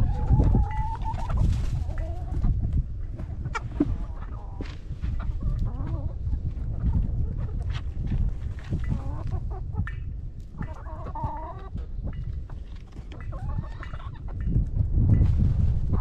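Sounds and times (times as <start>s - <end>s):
chickens clucking: 0.0s - 16.0s
steady low rumble: 14.0s - 16.0s.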